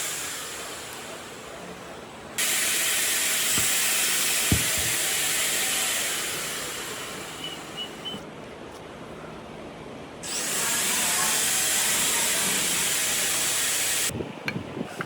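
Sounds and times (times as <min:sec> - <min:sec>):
air spraying from nozzle: 0:02.4 - 0:08.1, 0:10.2 - 0:14.1.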